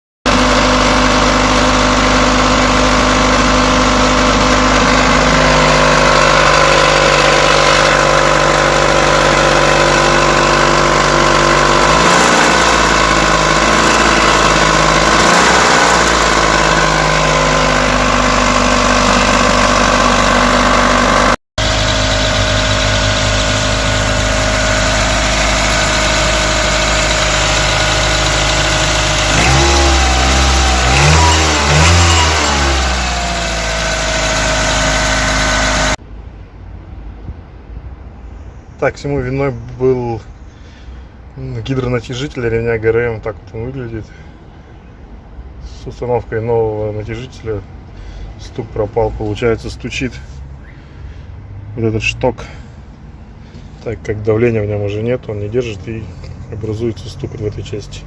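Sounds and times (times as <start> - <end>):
engine knocking: 0.3 - 36.0
car engine running: 0.3 - 36.2.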